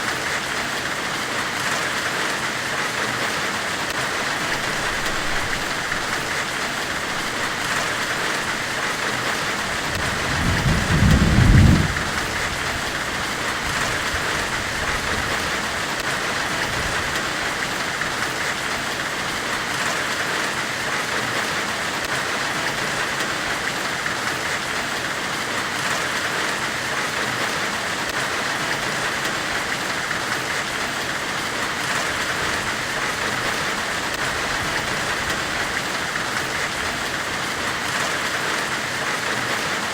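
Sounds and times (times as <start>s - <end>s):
low rumble: 9.8s - 13.3s.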